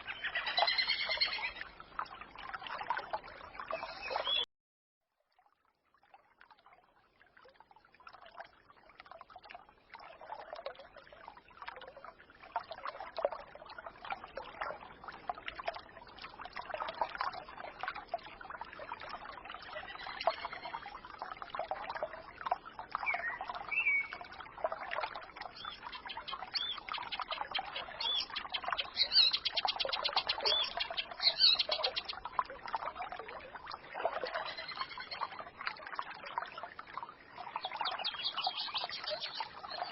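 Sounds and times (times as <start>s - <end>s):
stream babbling and trickling: 0.0s - 39.9s
songbirds chirping: 3.2s - 4.5s, 25.4s - 32.2s.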